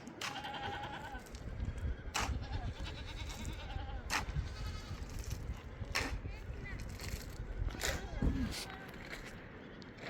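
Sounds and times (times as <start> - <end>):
goats bleating: 0.2 - 1.4, 2.2 - 5.0.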